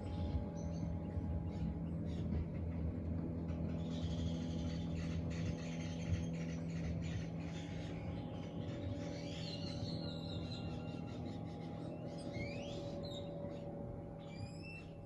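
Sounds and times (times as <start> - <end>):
steady low hum: 0.0 - 15.0
small birds chirping and whistling: 3.6 - 15.0.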